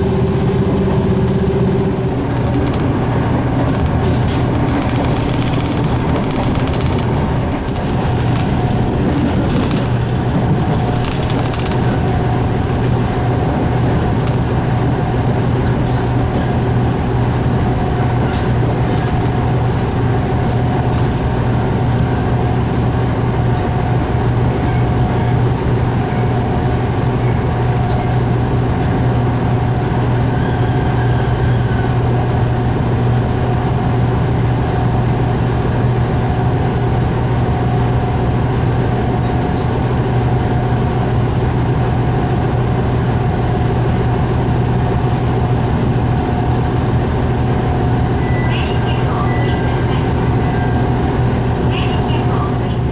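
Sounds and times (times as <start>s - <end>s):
diesel railcar engine hum: 0.0s - 52.9s
running gear clicks: 2.3s - 13.0s.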